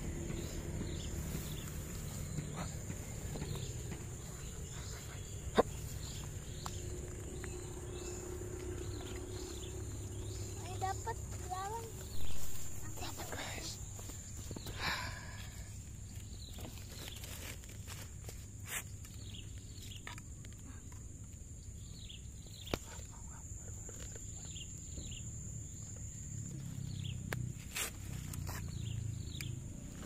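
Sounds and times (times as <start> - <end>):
birds chirping: 0.0 - 30.0
insect net and bottle clicks: 27.2 - 28.7.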